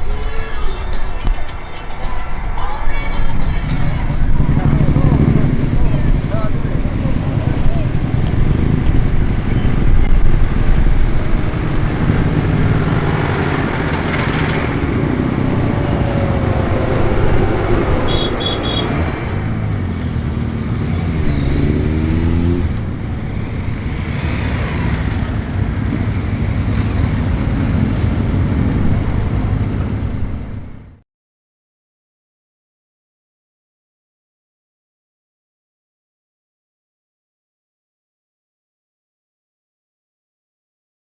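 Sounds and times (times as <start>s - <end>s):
tractor engines running: 0.9s - 31.0s.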